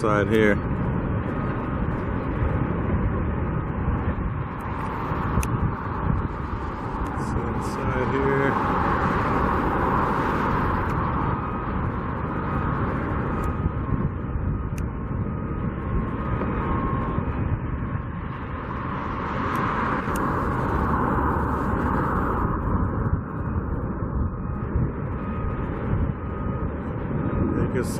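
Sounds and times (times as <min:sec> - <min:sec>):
passing road traffic rumble: 0:00.0 - 0:27.9.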